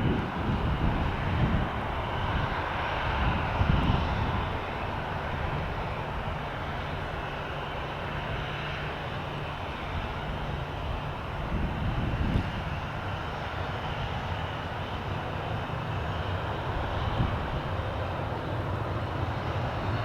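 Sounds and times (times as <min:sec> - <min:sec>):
aircraft engines rushing: 0:00.0 - 0:20.0
low engine hum: 0:00.0 - 0:20.0.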